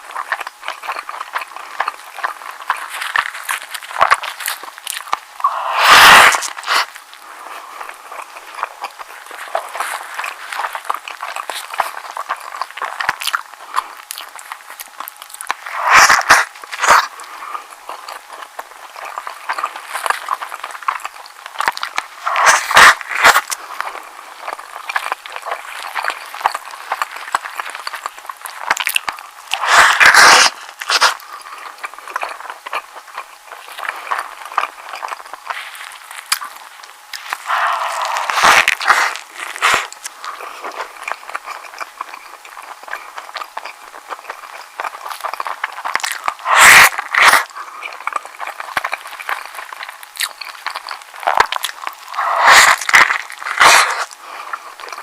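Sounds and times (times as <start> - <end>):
close chewing of sandwich: 0.0 - 55.0.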